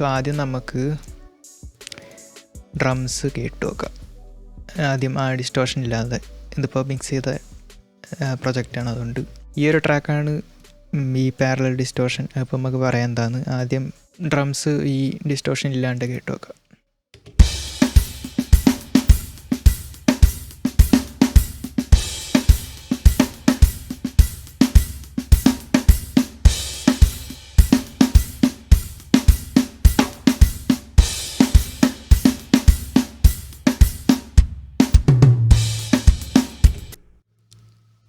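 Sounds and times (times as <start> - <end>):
drum kit groove: 0.0 - 5.1, 5.8 - 10.7, 17.2 - 37.2.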